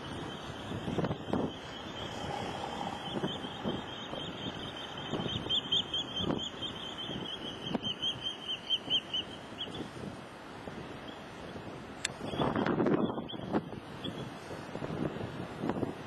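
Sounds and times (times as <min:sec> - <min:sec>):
small bird chirping: 0:00.0 - 0:09.8
low wind rumble on microphone: 0:00.0 - 0:16.0.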